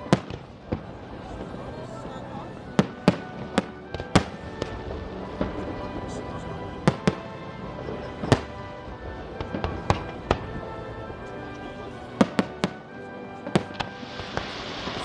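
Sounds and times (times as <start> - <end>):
fireworks bangs: 0.0 - 1.6, 2.7 - 6.2, 6.8 - 10.7, 12.2 - 15.0
music playing: 0.0 - 15.0
hissing crackle: 13.4 - 15.0.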